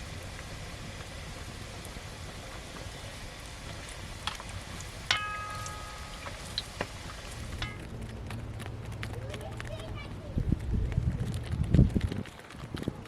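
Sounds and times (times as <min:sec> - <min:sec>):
steady hissing noise: 0:00.0 - 0:08.9
ringing clink: 0:05.1 - 0:06.6.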